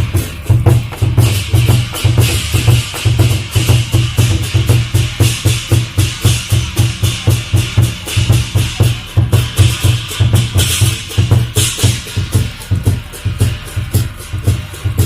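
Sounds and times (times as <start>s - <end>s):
cymbals clashing: 0.0s - 15.0s
large drum beating: 0.0s - 15.0s.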